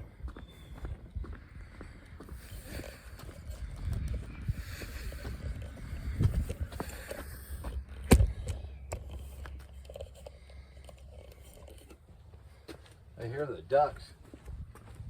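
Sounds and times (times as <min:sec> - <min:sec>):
wind rumbling on microphone: 0:00.0 - 0:09.8, 0:14.4 - 0:15.0.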